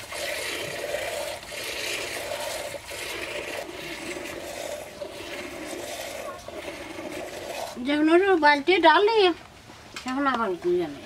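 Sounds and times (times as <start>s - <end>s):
milk squirting into a bowl: 0.0s - 7.9s.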